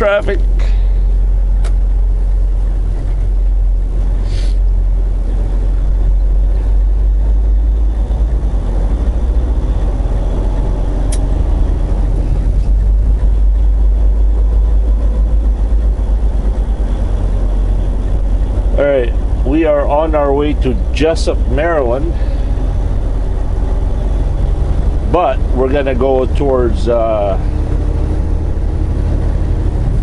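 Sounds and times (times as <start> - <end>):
truck diesel engine rumbling: 0.0 - 30.0
sharp clicks: 11.1 - 11.3.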